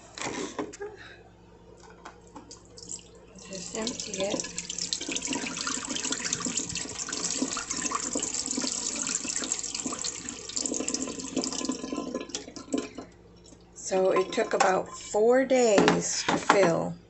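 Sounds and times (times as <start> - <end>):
water pouring into a sink: 2.8 - 13.1.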